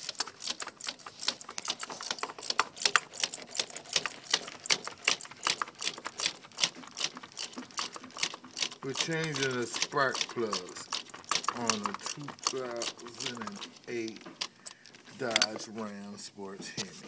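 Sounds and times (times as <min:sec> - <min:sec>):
ratchet wrench clicking: 0:00.0 - 0:15.7.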